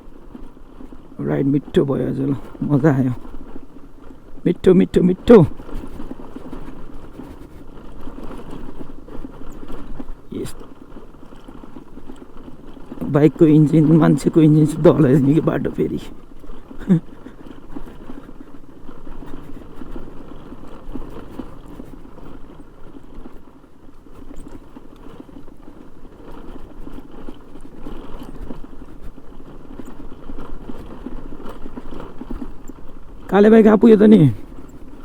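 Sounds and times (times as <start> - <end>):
motorcycle engine running: 0.1 - 35.0.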